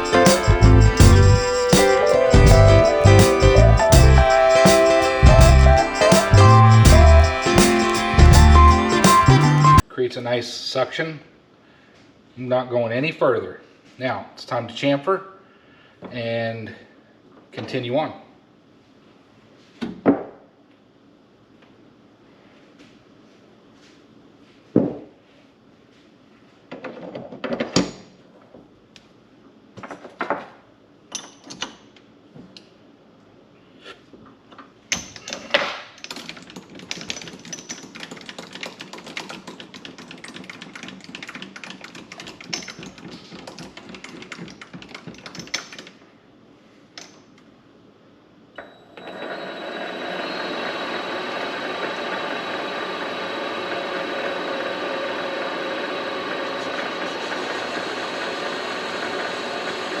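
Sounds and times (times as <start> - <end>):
rapid clicking and rattling: 35.2 - 46.0
lathe motor with gear whine: 49.0 - 60.0.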